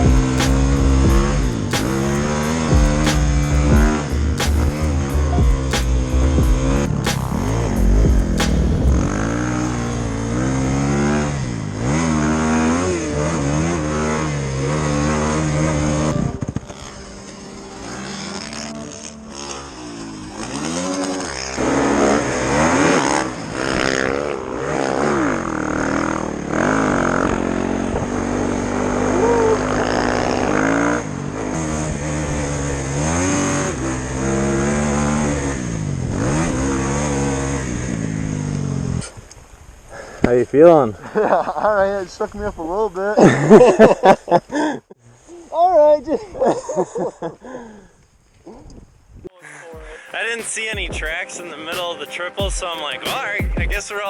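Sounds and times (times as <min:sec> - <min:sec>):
motorbike engines revving: 0:00.0 - 0:39.2.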